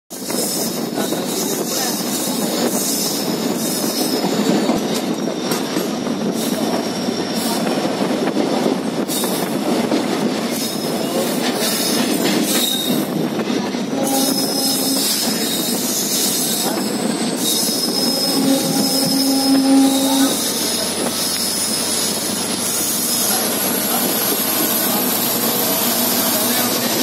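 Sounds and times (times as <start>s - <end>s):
train wheels rumbling on rails: 0.1s - 27.0s
clacks over rail joints: 8.2s - 17.6s
high wheel squeal: 10.5s - 13.2s, 13.9s - 27.0s.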